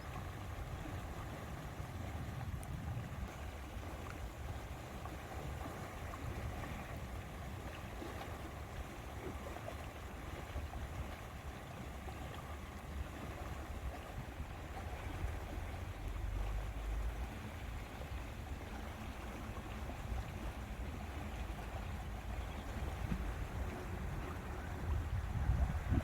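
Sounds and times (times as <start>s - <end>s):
wind rumbling: 22.9s - 26.0s.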